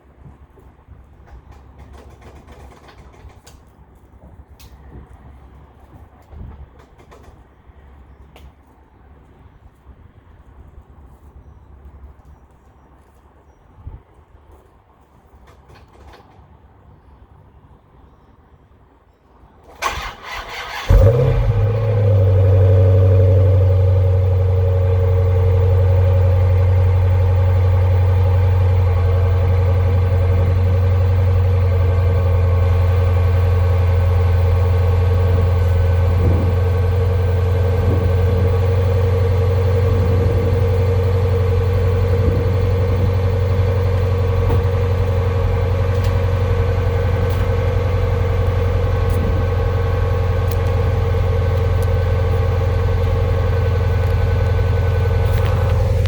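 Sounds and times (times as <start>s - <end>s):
car engine starting and idling: 19.6s - 56.0s
starter cranking engine: 19.8s - 21.4s.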